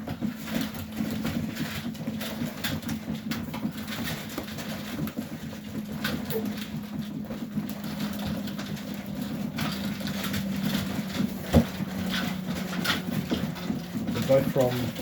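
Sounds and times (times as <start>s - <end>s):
pigeons cooing: 5.8s - 14.2s.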